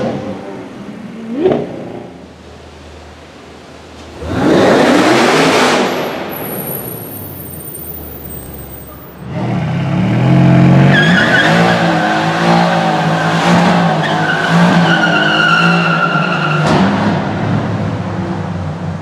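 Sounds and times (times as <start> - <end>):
car engine revving: 4.1 - 6.7.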